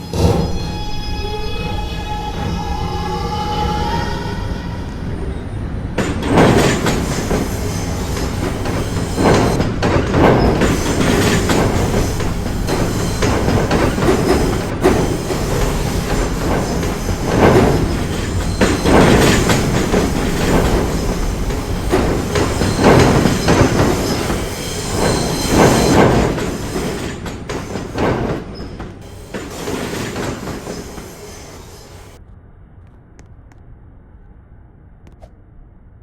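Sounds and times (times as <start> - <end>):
subway wheels clattering on rails: 0.0 - 32.2.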